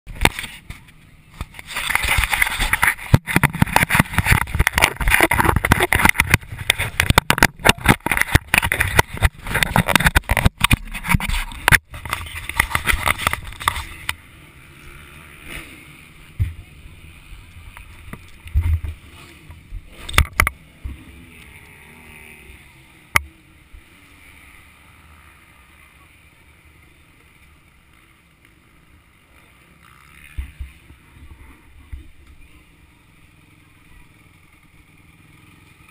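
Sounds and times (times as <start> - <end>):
muffled motocross bike riding: 0.1 - 35.9
thumps: 1.4 - 14.1.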